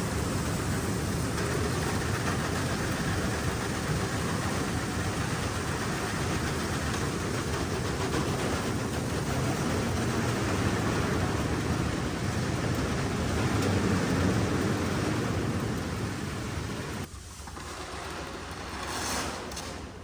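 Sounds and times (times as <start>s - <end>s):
engine running steadily: 0.0s - 18.9s.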